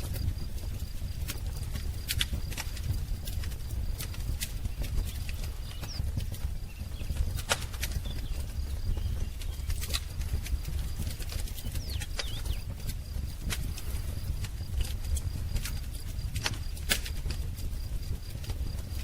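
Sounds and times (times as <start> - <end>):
wood fire crackling: 0.0 - 19.0
bird chirps: 4.7 - 10.0, 11.5 - 12.7.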